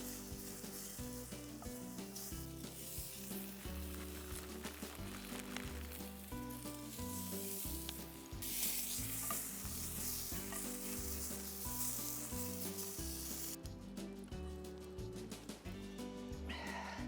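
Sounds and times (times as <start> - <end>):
vegetables sizzling in a pan: 0.0 - 13.6
background music with bass: 0.0 - 17.0.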